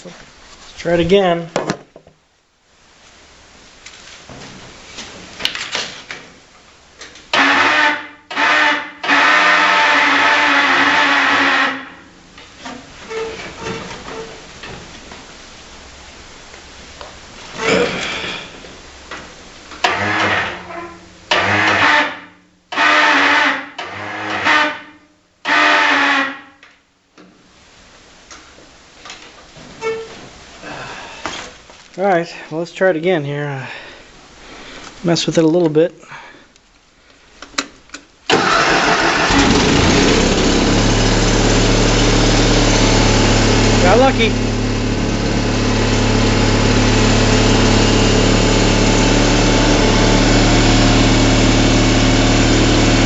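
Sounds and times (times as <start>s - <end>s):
engine electric starter cranking: 7.3s - 11.9s, 19.8s - 24.8s, 38.3s - 53.0s.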